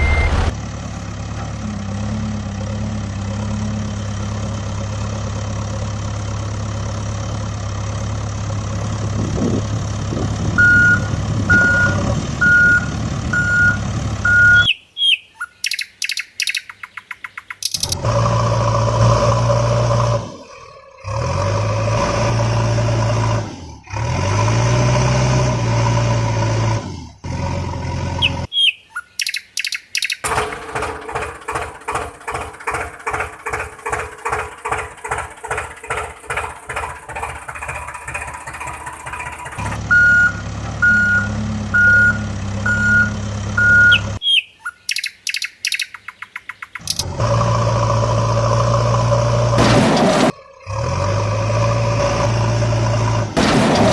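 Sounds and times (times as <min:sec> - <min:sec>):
reversing beeper: 0:00.0 - 0:00.5, 0:10.6 - 0:14.8, 0:39.9 - 0:44.4
truck engine drone: 0:00.0 - 0:15.0, 0:15.6 - 0:53.9.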